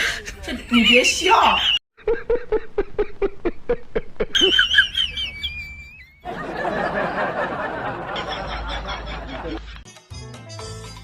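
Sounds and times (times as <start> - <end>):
person snickering: 2.0 - 6.1.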